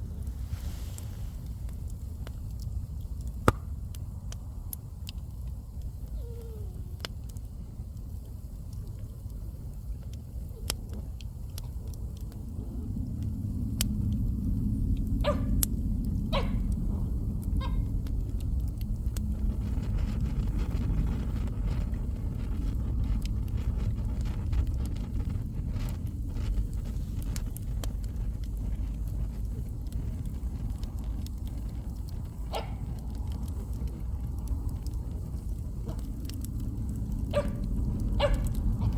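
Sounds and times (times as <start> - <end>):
bonfire crackling and popping: 0.0 - 38.9
dog yelping: 15.2 - 15.5, 16.3 - 16.6, 17.6 - 17.9, 37.3 - 37.6, 38.2 - 38.9.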